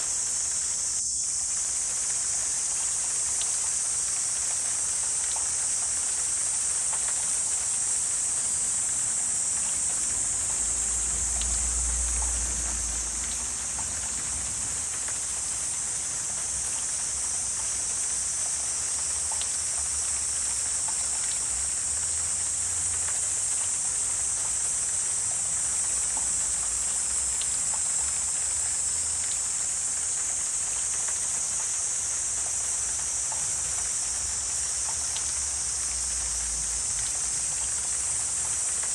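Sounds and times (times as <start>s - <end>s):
insect chorus: 0.0s - 38.9s
faint ticks: 9.4s - 14.3s, 17.5s - 38.9s.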